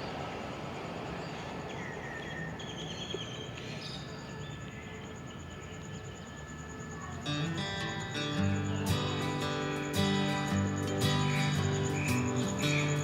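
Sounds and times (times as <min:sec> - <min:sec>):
guitar music: 0:07.3 - 0:13.0.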